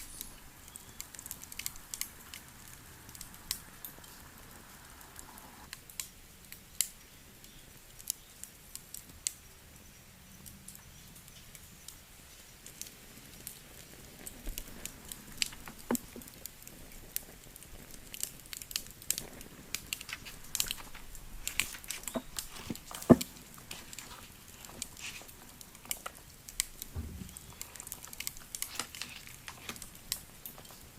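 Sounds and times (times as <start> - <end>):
wood fire crackling: 0.0 - 30.9.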